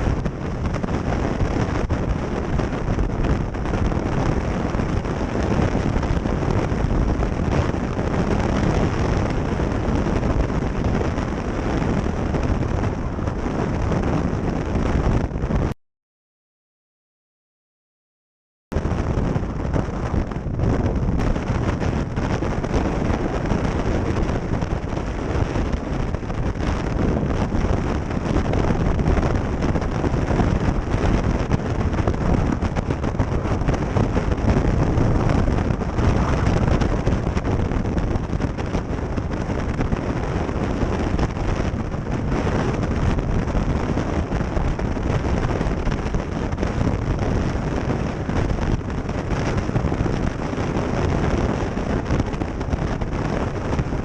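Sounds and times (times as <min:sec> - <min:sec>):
wind rushing over microphone: 0:00.0 - 0:15.8, 0:18.7 - 0:54.0
road noise: 0:21.2 - 0:48.3
motorcycle engine: 0:34.1 - 0:37.3.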